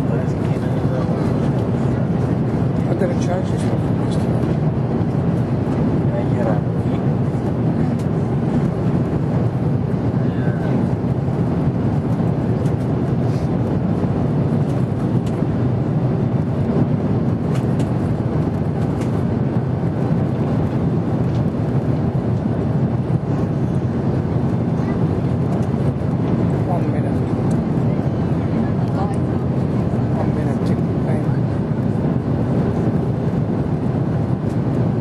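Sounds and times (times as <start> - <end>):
aircraft cabin engine rumble: 0.0 - 35.0.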